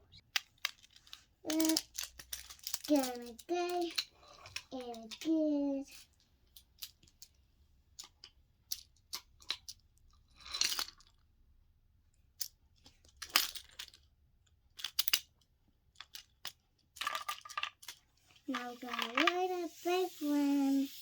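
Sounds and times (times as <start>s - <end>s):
toy pieces clicking: 0.3s - 6.0s, 14.8s - 15.3s, 16.0s - 20.9s
toy pieces rattling: 0.3s - 6.1s, 14.8s - 15.3s, 16.0s - 21.0s.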